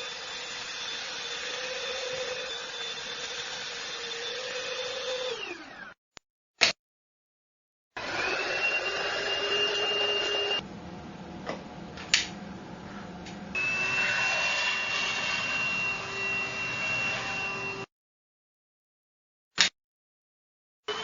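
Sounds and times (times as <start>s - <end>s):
vacuum cleaner motor whining: 5.2s - 6.0s, 8.0s - 10.6s, 13.6s - 17.9s.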